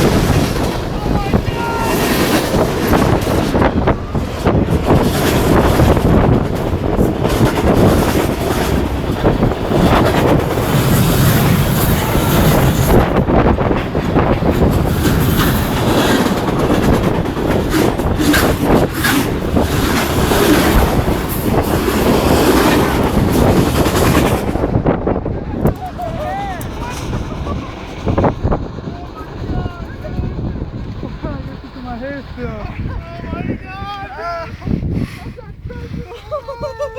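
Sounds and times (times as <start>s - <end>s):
train wheels clattering on rails: 0.0s - 35.2s.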